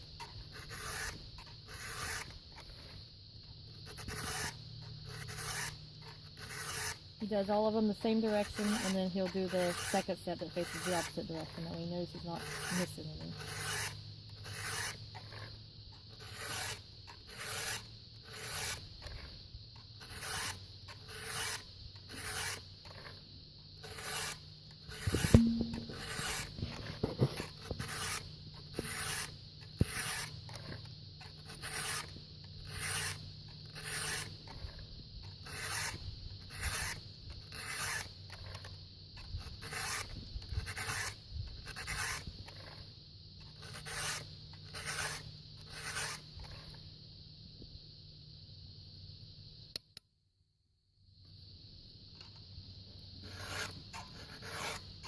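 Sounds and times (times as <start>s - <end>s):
file rasping on chainsaw chain: 0.0s - 3.0s, 3.7s - 23.2s, 23.8s - 42.8s, 43.5s - 46.8s, 53.2s - 54.9s
sharp knock: 25.2s - 26.2s.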